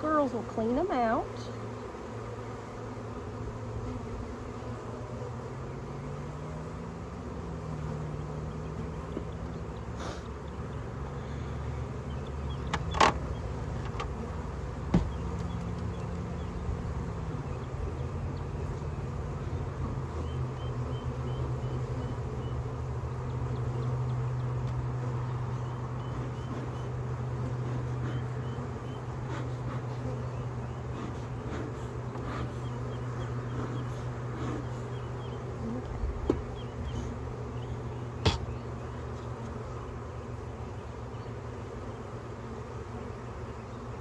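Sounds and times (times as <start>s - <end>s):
honeybees buzzing: 0.0s - 44.0s
sharp knocks: 14.9s - 15.2s, 38.2s - 38.6s.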